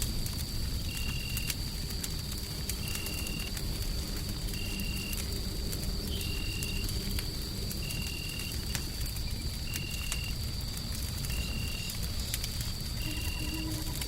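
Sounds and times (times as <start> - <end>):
fireplace fire crackling: 0.0 - 14.0
thin high whine: 13.0 - 14.0.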